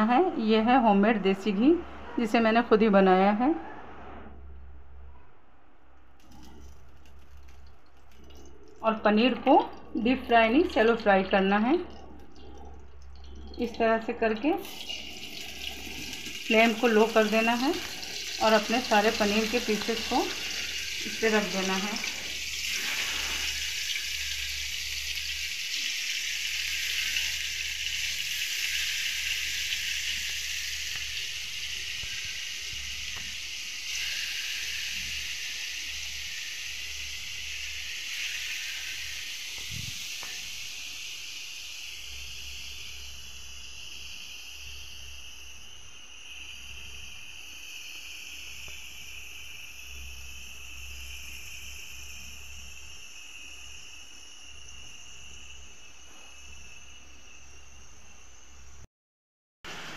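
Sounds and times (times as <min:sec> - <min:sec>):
cheese sizzling on a griddle: 0:14.8 - 0:44.6.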